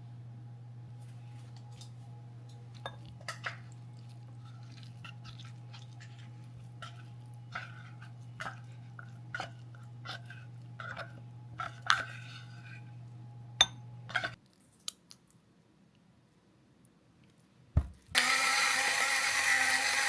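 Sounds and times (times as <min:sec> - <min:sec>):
steady low hum: 0:00.0 - 0:14.4.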